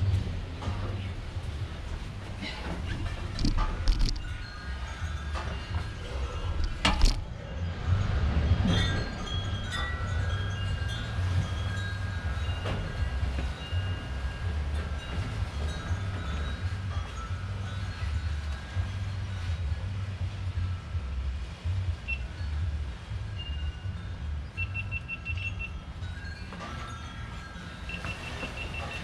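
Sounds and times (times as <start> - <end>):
wind buffeting microphone: 0.0 - 29.0
faint high ringing tones: 22.0 - 29.0.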